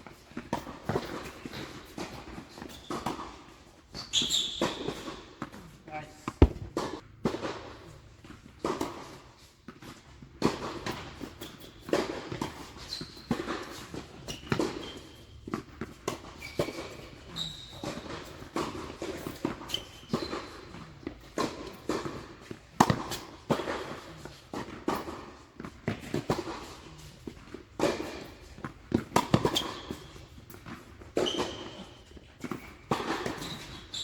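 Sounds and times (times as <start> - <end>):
tennis shoes squeaking on court: 0.5 - 7.0, 12.5 - 15.3, 16.3 - 18.4, 19.2 - 20.7, 29.0 - 34.0
tennis ball bouncing: 6.4 - 7.0
tennis racket striking ball: 6.4 - 7.0.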